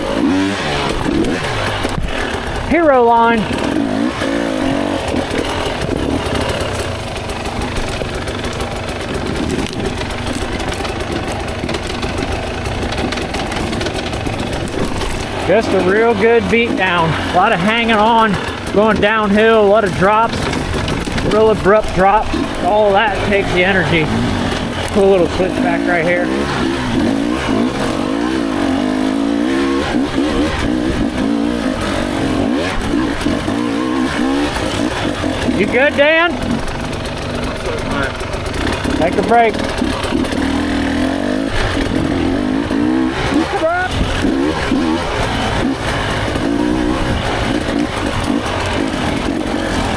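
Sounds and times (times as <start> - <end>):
dirt bike engine at low revs: 0.0 - 49.9
bike knocking over rocks: 3.5 - 15.5, 17.7 - 25.6.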